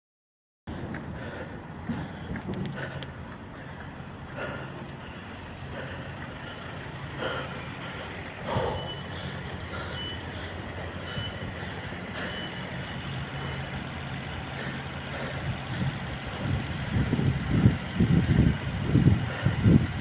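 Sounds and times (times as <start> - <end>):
steady low hum: 0.7 - 20.0
level crossing alarm beeping: 8.5 - 13.8.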